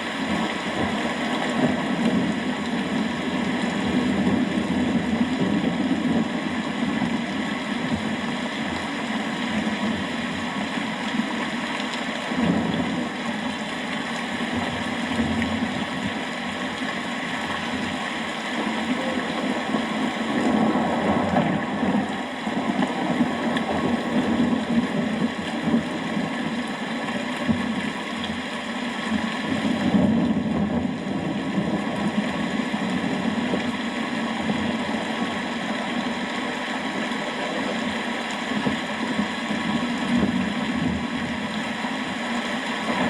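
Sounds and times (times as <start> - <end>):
steady rain: 0.0 - 43.0
low thunder rumbling: 14.2 - 28.0.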